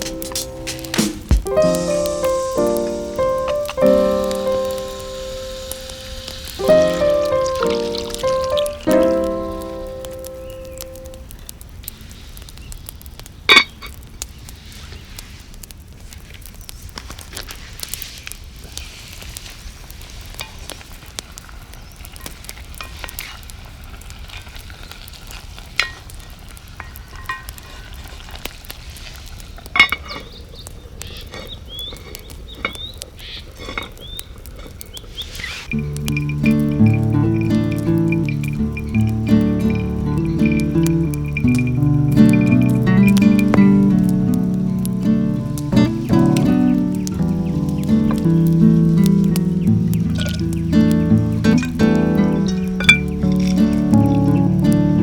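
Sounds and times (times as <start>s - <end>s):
sharp pops: 0.0s - 11.3s, 35.2s - 55.0s
meat sizzling over fire: 0.0s - 55.0s.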